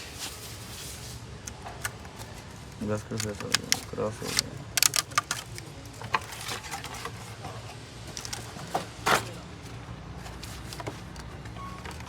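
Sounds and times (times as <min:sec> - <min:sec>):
tools and metal parts clicking: 0:01.5 - 0:07.4, 0:08.0 - 0:09.3.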